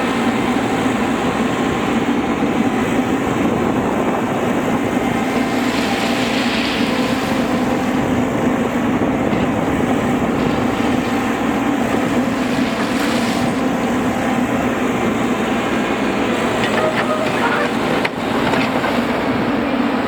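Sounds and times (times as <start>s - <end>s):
track repair machinery droning: 0.0s - 20.0s.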